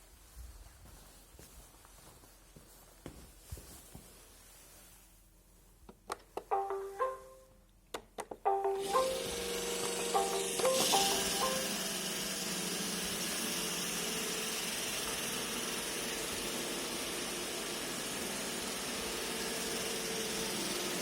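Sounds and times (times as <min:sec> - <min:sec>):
robot vacuum whirring: 0:08.8 - 0:21.0.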